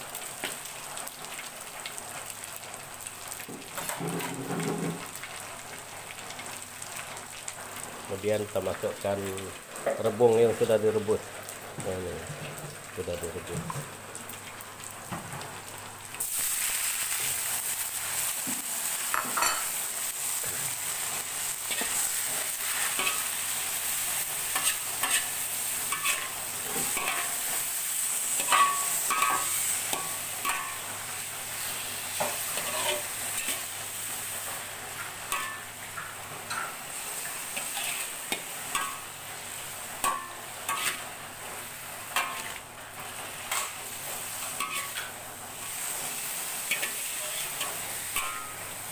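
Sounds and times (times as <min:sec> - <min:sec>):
food sizzling in a wok: 0:00.0 - 0:48.9
metal spatula scraping a wok: 0:21.7 - 0:23.4, 0:24.4 - 0:27.4, 0:31.6 - 0:33.7, 0:37.5 - 0:39.0, 0:40.0 - 0:41.1, 0:42.2 - 0:42.6, 0:44.4 - 0:46.0, 0:46.6 - 0:48.5.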